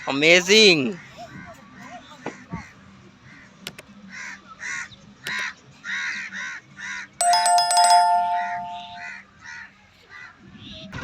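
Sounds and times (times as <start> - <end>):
loud bell-like chime: 7.2 - 9.1.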